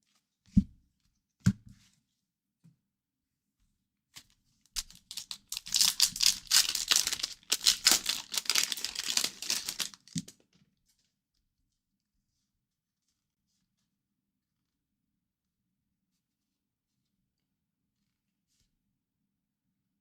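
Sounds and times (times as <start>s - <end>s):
foil wrapper crackling: 4.8s - 10.4s.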